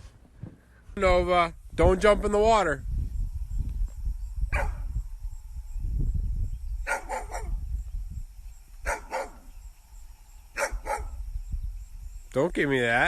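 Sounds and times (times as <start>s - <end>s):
steady low rumble: 0.9s - 12.3s
dog barking: 4.5s - 4.8s, 6.9s - 7.6s, 8.8s - 9.5s, 10.6s - 11.2s.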